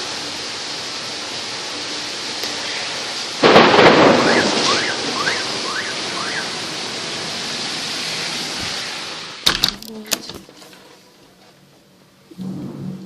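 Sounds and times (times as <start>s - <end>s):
steady rain: 0.0s - 13.0s
thunderclap rumbling: 2.6s - 9.7s, 12.3s - 13.0s.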